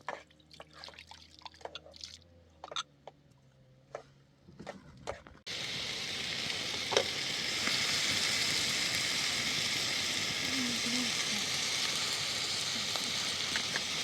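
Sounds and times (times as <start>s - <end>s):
food sizzling in a pan: 5.5s - 14.0s
sharp crackle: 5.5s - 14.0s.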